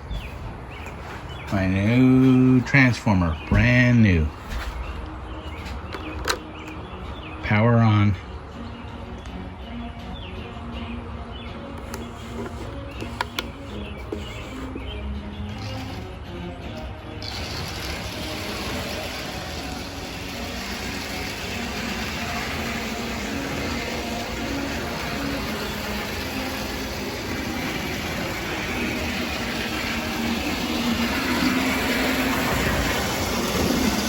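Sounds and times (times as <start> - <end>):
model locomotive motor whirring: 17.2 - 34.0.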